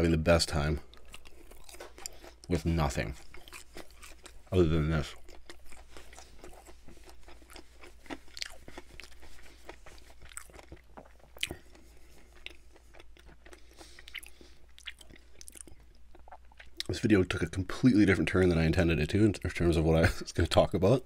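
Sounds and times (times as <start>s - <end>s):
person chewing crunchy food: 0.8s - 17.0s.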